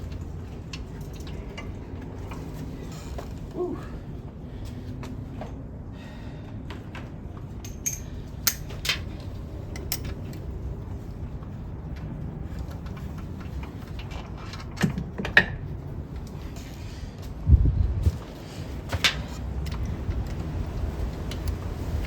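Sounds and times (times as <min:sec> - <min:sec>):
metal tools clinking: 0:07.6 - 0:09.1, 0:09.7 - 0:10.5.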